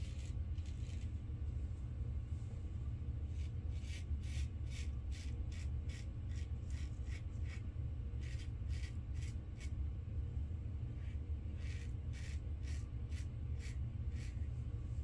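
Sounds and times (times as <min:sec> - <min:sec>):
razor scraping stubble: 0:00.0 - 0:01.1, 0:08.2 - 0:09.7, 0:11.6 - 0:14.5
steady low hum: 0:00.0 - 0:15.0.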